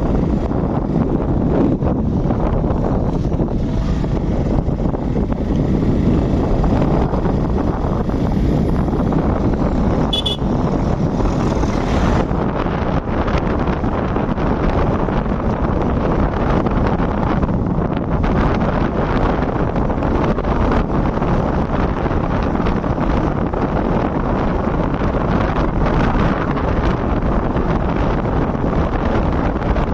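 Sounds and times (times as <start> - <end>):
road and engine noise: 0.0 - 29.9
wind rush over microphone: 0.0 - 29.9
vehicle horn beep: 10.1 - 10.6.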